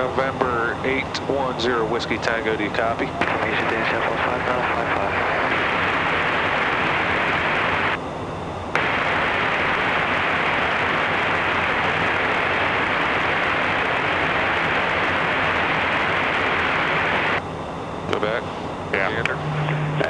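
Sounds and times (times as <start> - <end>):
radio hiss: 0.0 - 8.0, 8.8 - 17.4, 18.1 - 20.0
radio click: 3.2 - 5.9.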